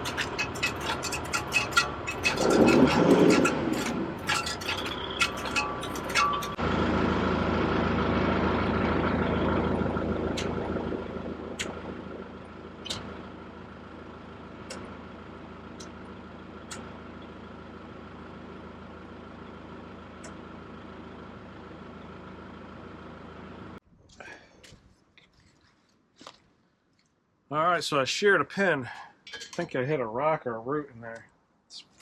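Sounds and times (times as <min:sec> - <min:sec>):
tractor diesel engine: 0:00.0 - 0:24.5.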